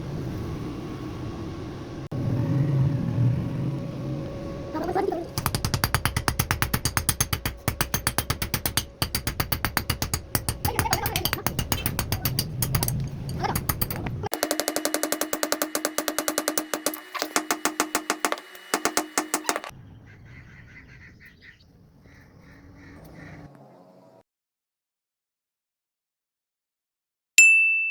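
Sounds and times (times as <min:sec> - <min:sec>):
machine running: 0:03.4 - 0:19.7
fast even rattle: 0:05.3 - 0:19.7.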